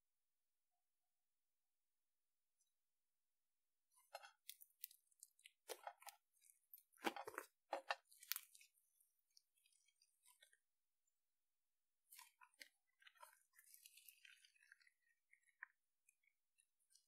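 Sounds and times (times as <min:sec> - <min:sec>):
slime crackling and popping: 0:04.1 - 0:08.7.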